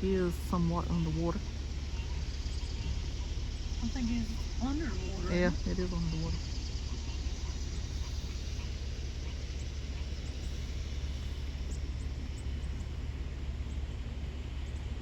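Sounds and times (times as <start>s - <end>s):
constant low hum: 0.0s - 15.0s
floodwater rushing: 0.0s - 15.0s.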